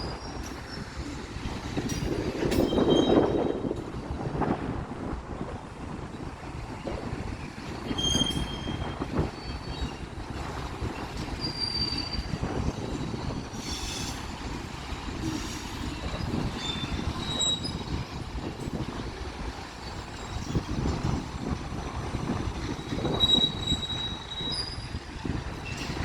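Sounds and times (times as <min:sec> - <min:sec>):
freight train cars rolling: 0:00.0 - 0:26.0
high-pitched wheel squeals: 0:02.6 - 0:03.6, 0:07.9 - 0:10.1, 0:11.4 - 0:12.4, 0:16.6 - 0:18.0, 0:23.1 - 0:25.0.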